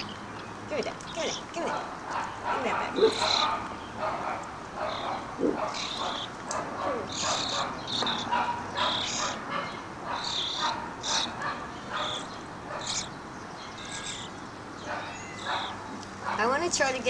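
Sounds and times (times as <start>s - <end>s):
bird high-pitched calls: 3.0s - 16.2s.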